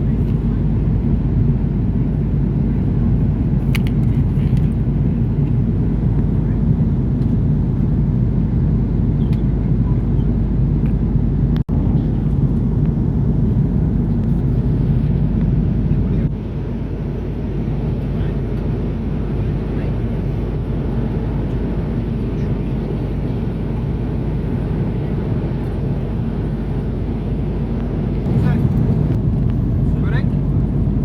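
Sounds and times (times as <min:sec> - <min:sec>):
airliner cabin rumble: 0:00.0 - 0:31.0.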